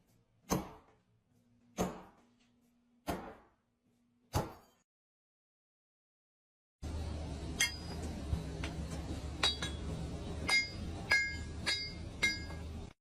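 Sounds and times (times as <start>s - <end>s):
low steady hum: 6.8s - 13.0s.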